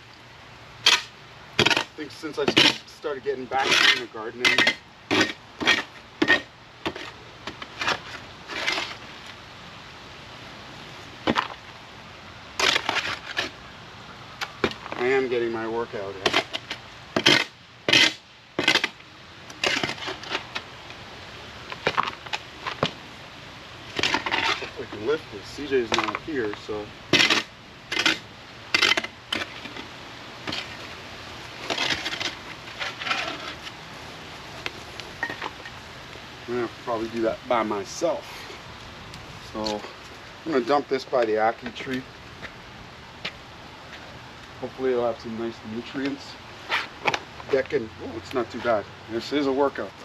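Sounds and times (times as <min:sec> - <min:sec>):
shovel scraping dirt and ash: 0:00.8 - 0:09.0, 0:12.6 - 0:13.6, 0:16.2 - 0:20.7, 0:23.9 - 0:33.8.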